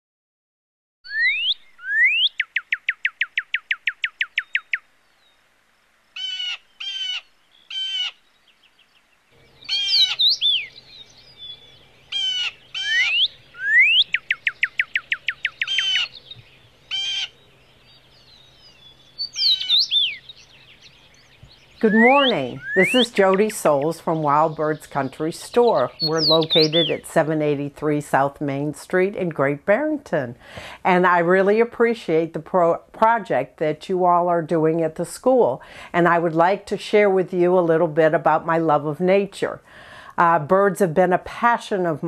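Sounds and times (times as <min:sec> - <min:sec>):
buzzy bird calls: 0:01.1 - 0:04.8, 0:06.2 - 0:27.1
songbirds singing: 0:01.1 - 0:30.2, 0:36.1 - 0:39.6.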